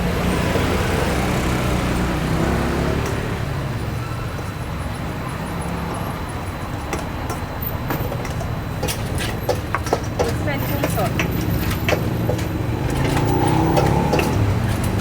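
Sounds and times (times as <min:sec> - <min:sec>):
traffic noise: 0:00.0 - 0:15.0
vehicle engine rumble: 0:00.0 - 0:15.0.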